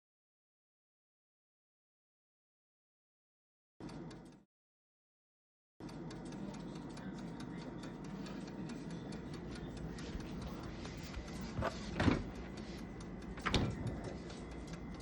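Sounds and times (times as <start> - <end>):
steady low hum: 5.9 - 15.0.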